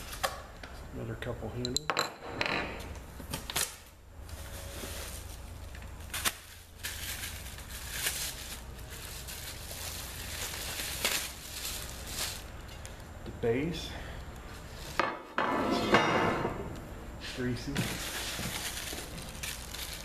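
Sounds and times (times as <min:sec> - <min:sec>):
packing material rustling: 0:03.5 - 0:13.0, 0:17.7 - 0:20.0.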